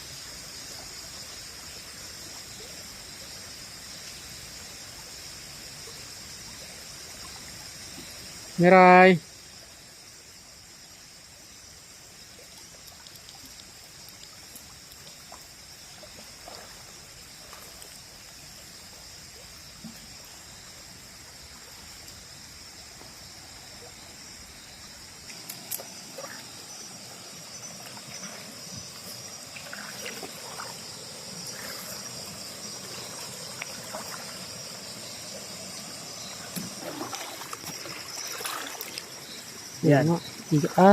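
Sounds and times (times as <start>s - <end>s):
night insects droning: 0.0s - 40.9s
stream water trickling: 0.0s - 40.9s
splashing in water: 25.2s - 26.8s, 27.5s - 39.4s.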